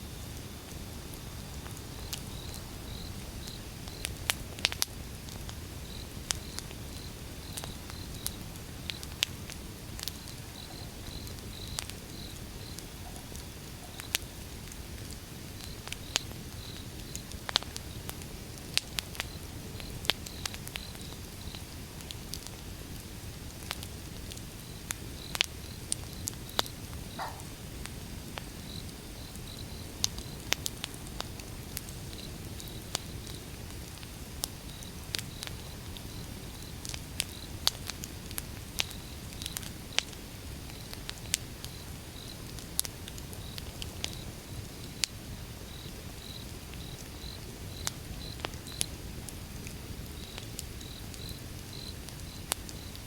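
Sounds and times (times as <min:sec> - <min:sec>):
cricket chirping: 0:00.1 - 0:04.2, 0:05.8 - 0:14.3, 0:24.6 - 0:27.6, 0:45.7 - 0:48.9, 0:50.2 - 0:53.0
wood fire crackling and popping: 0:00.1 - 0:53.0.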